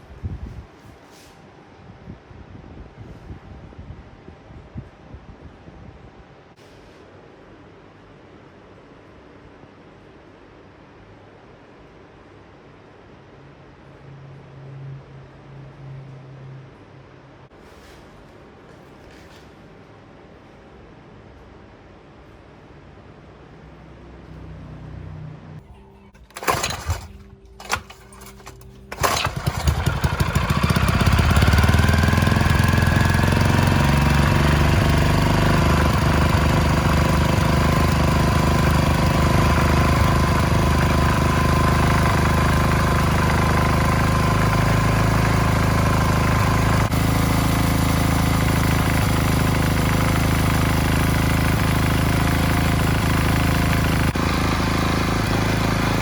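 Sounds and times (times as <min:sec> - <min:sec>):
petrol engine starting and running: 0:25.5 - 0:56.0.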